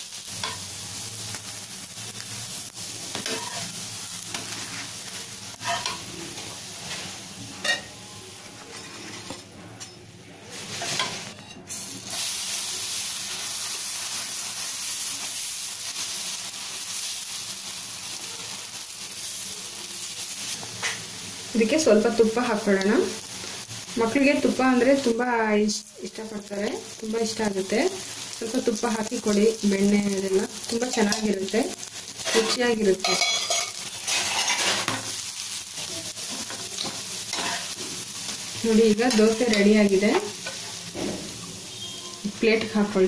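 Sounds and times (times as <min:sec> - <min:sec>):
batter sizzling on a pan: 0:00.0 - 0:09.3, 0:10.4 - 0:43.0
steel spatula scraping a pan: 0:03.1 - 0:03.7, 0:05.5 - 0:06.1, 0:08.5 - 0:09.5, 0:10.5 - 0:12.2, 0:32.1 - 0:35.0, 0:36.3 - 0:37.8.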